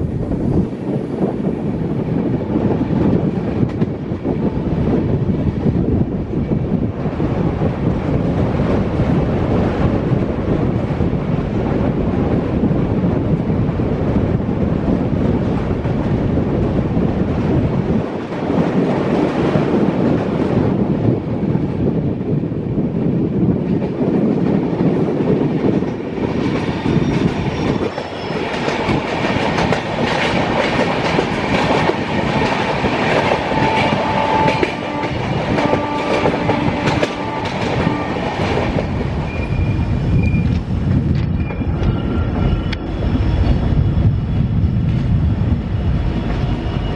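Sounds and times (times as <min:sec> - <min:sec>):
train wheels clattering on rails: 0:00.0 - 0:13.6, 0:23.4 - 0:46.9.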